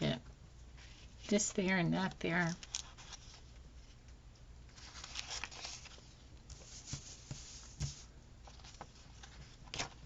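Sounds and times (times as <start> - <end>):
paper stickers rustling: 4.7 - 10.0.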